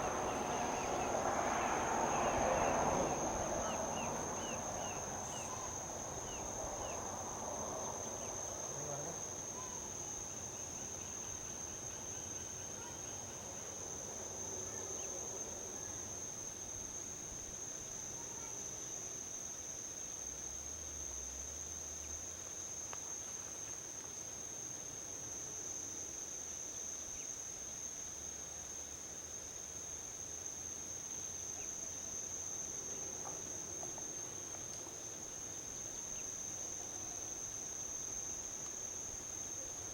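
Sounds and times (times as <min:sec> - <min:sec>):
distant highway traffic rumble: 0:00.0 - 0:16.2
insects trilling: 0:00.0 - 0:39.9.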